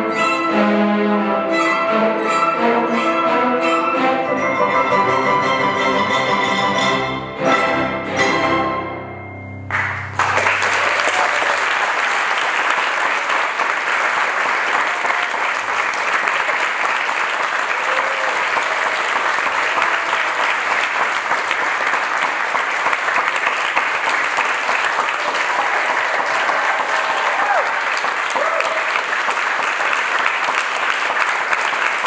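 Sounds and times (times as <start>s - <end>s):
audience applauding: 9.7s - 32.0s.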